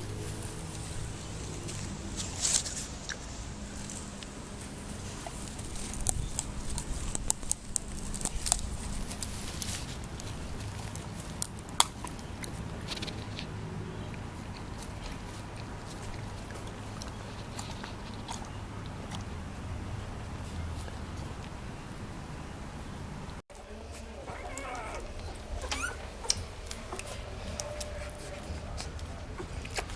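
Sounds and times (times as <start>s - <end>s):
steady low hum: 0.0s - 23.4s.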